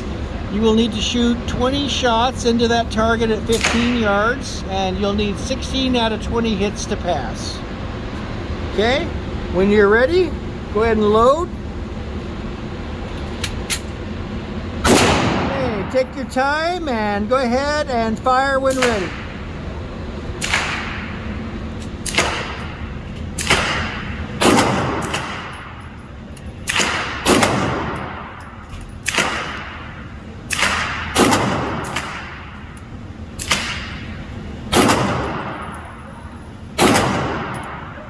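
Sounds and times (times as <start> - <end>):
pistol shots with echo: 3.0 - 4.4, 14.8 - 16.3, 18.7 - 38.0.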